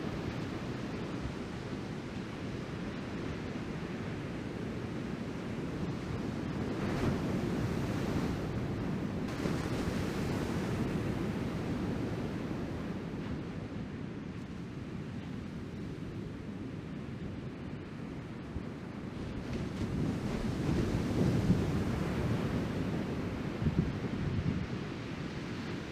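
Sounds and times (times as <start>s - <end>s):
wind on microphone: 18.3s - 25.9s.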